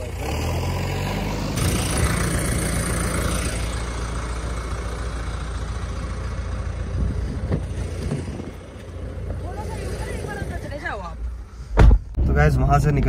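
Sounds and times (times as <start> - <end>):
engine idling: 1.6 - 11.8.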